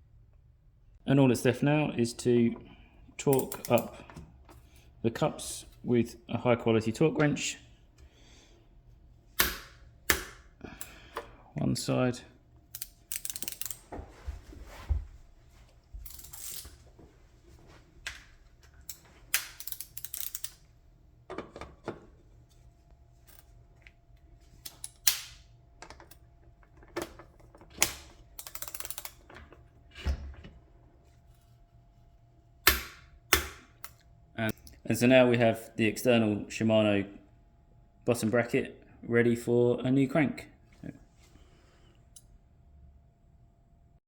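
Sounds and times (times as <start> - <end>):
torque wrench ratchet clicks: 3.3 - 3.9, 12.7 - 13.8, 18.9 - 20.6, 28.4 - 29.2.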